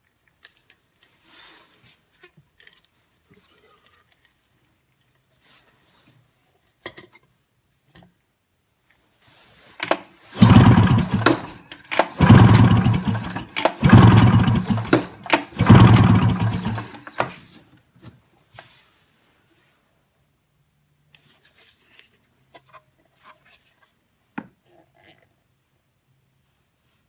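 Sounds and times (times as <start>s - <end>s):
engine being cranked over: 9.8s - 17.4s.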